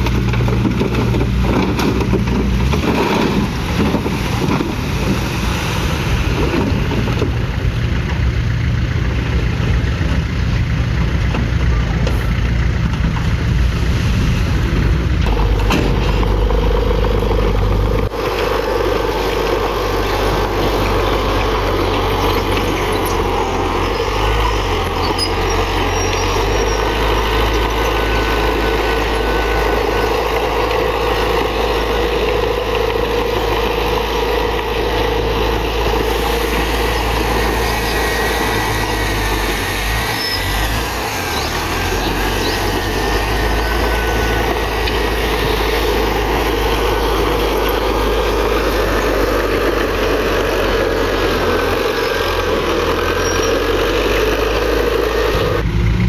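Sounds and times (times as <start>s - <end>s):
heavy diesel engine under load: 0.0s - 56.0s
faint high squeals: 22.1s - 30.2s.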